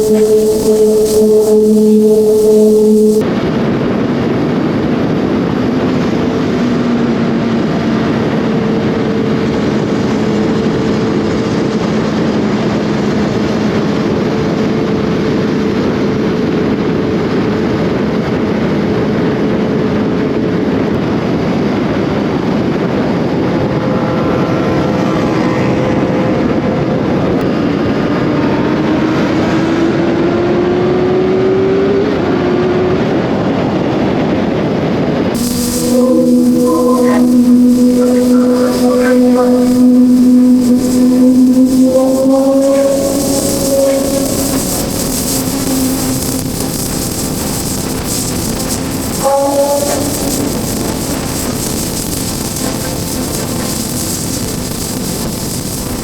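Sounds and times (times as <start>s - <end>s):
wind noise: 0.0s - 3.2s, 35.4s - 56.0s.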